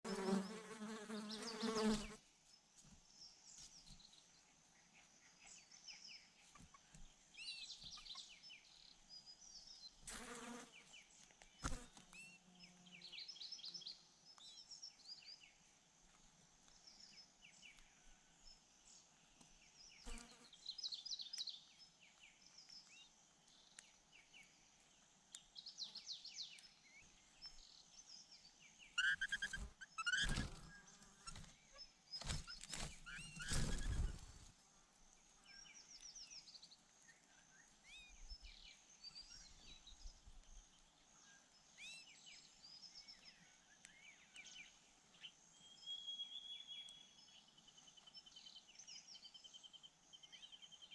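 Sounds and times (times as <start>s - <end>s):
small birds chirping: 0.0s - 50.9s
flies buzzing: 0.1s - 2.2s.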